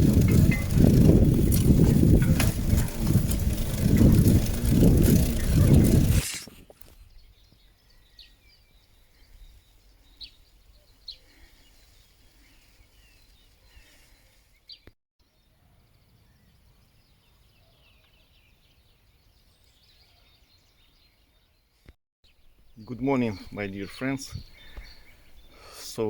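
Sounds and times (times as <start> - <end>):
birds twittering: 0.0 - 6.3, 22.3 - 26.0.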